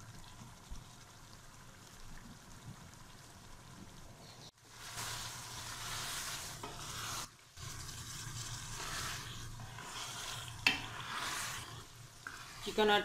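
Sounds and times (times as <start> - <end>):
food sizzling in a pot: 2.9 - 13.0
stirring scrape in a pot: 4.8 - 13.0.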